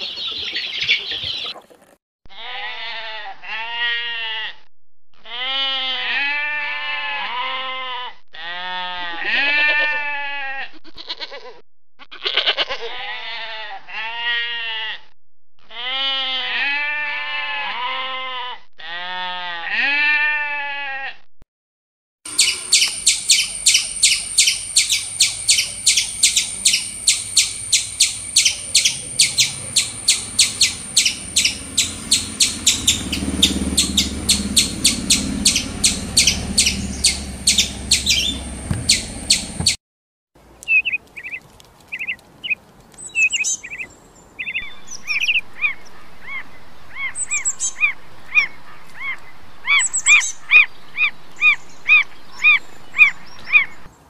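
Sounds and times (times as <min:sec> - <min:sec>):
rapid chattering calls: 0:22.3 - 0:39.8.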